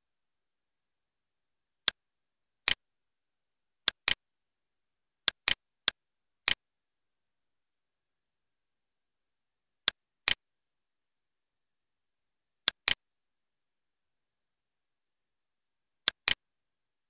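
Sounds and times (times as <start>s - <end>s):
computer mouse clicks: 3.8s - 4.2s, 5.3s - 6.6s, 12.6s - 13.0s, 16.0s - 16.4s.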